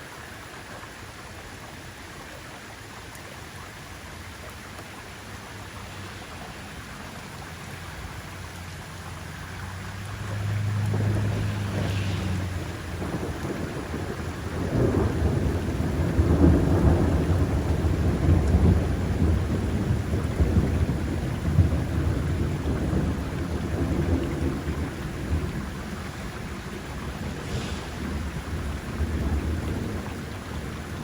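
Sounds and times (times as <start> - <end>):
steady rain: 0.0 - 31.0
thunder rolling: 10.4 - 31.0.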